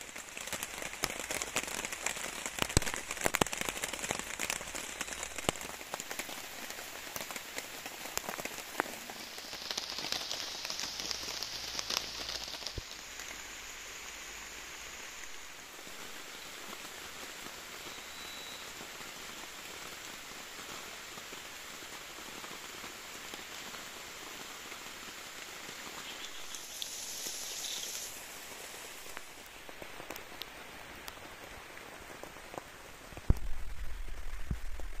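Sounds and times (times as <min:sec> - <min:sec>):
raindrop ticks: 0:00.0 - 0:13.5, 0:26.0 - 0:28.2, 0:29.0 - 0:35.0
rain falling: 0:00.0 - 0:35.0
bright high hiss: 0:09.2 - 0:16.6, 0:17.8 - 0:18.8, 0:25.9 - 0:30.1.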